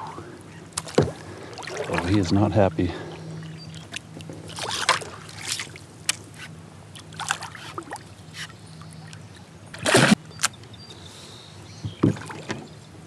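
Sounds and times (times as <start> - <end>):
water splashing: 0.8 - 6.3, 6.9 - 8.1
knocks on kayak: 0.9 - 1.2, 11.8 - 12.6.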